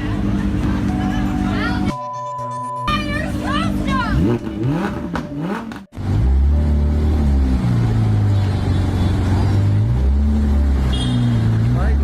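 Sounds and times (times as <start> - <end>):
car engine running: 2.9 - 12.0.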